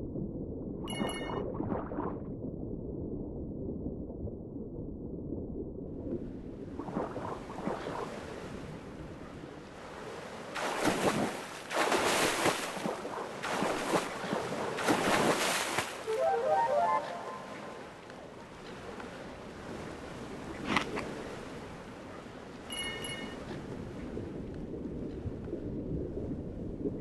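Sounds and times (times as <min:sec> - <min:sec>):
waves rushing: 0:09.7 - 0:22.1.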